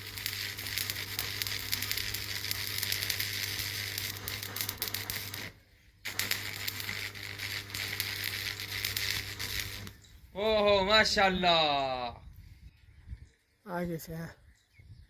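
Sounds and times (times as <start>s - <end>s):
welding arc crackling and sizzling: 0.0s - 10.1s
low electrical hum: 0.0s - 11.9s.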